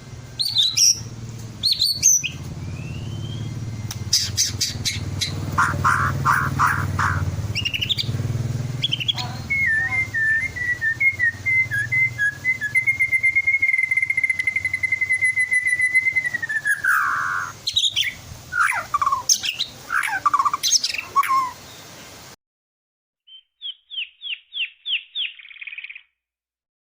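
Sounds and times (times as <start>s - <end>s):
bird singing chirps and whistles: 0.3s - 8.2s, 8.8s - 21.8s, 23.3s - 26.1s.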